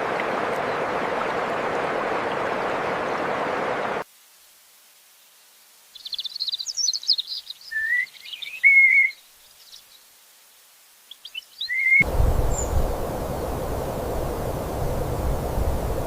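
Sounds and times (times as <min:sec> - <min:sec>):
songbird chirping and whistling: 0:06.0 - 0:09.8, 0:11.1 - 0:12.9
steady rushing noise: 0:12.0 - 0:16.0.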